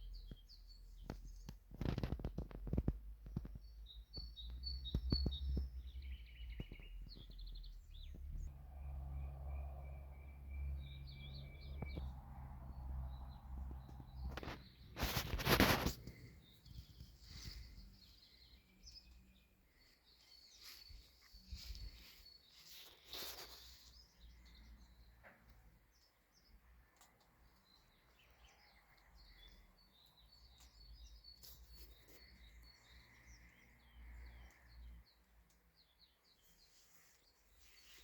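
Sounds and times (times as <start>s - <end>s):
distant small birds chirping: 0.0s - 38.0s
soft rustles: 14.2s - 24.6s, 36.4s - 38.0s.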